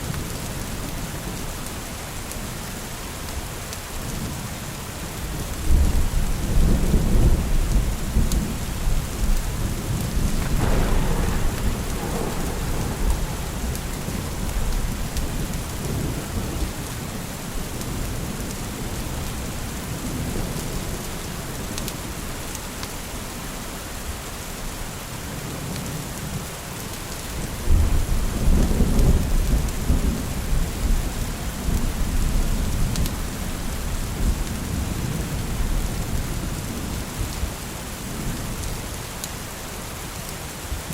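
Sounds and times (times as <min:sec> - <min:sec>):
steady rain falling: 0:00.0 - 0:40.9
thunder rumbling: 0:05.7 - 0:22.2.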